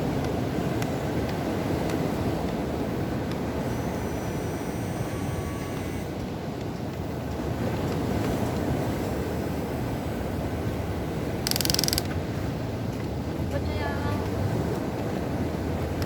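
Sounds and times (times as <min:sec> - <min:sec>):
toy excavator motors whining: 0:03.6 - 0:06.3, 0:11.4 - 0:12.1.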